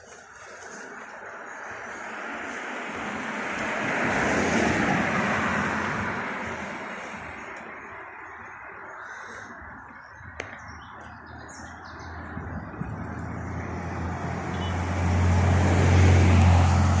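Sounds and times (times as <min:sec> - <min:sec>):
heavy vehicle engine hum: 0:00.0 - 0:17.0
street traffic: 0:00.0 - 0:17.0
birds chirping faintly: 0:07.3 - 0:13.6.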